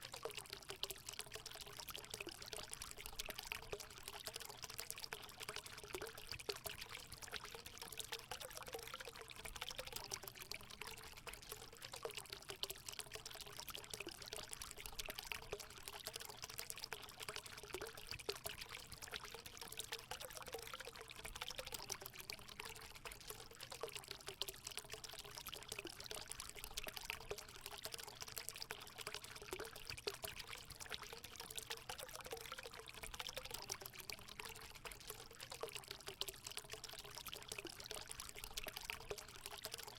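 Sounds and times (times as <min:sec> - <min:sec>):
water pouring into pool: 0:00.0 - 0:39.9.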